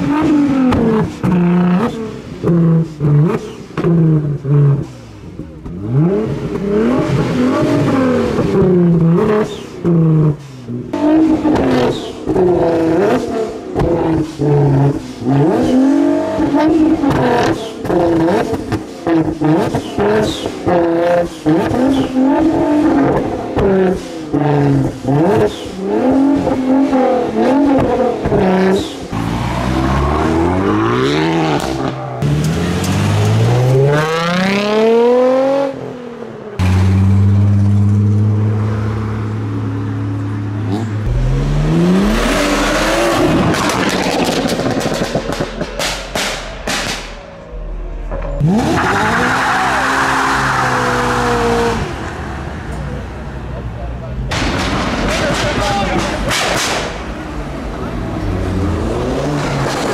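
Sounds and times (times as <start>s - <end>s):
car engine revving hard: 5.6s - 37.8s, 40.6s - 47.1s, 48.1s - 52.4s, 54.4s - 59.9s
exhaust cracks: 40.6s - 49.8s, 53.8s - 57.4s.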